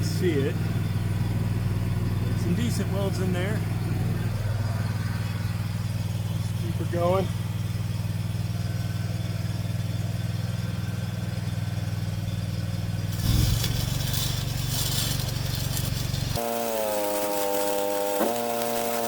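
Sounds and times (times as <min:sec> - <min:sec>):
welding machine engine running: 0:07.2 - 0:19.0
welding arc crackling: 0:13.1 - 0:19.0.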